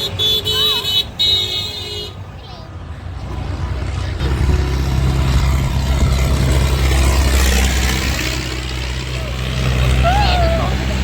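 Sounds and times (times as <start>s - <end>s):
tractor engine running: 2.8s - 11.0s.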